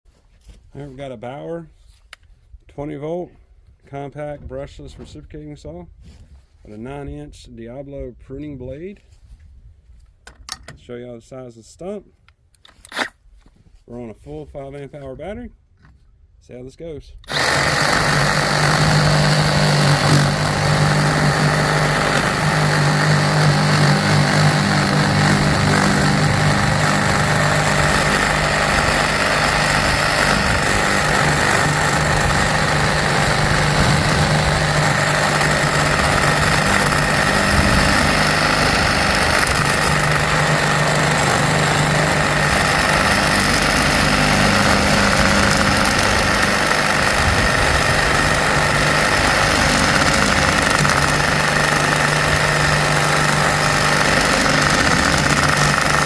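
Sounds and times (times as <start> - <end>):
reciprocating saw cutting stump: 17.2 - 56.0.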